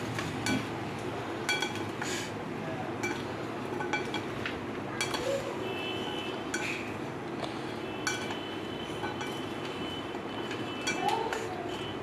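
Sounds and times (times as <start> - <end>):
spoon clinking against bowl: 3.0 - 4.3, 5.0 - 5.3, 6.5 - 6.8, 8.0 - 8.4, 9.0 - 9.8, 10.4 - 11.5.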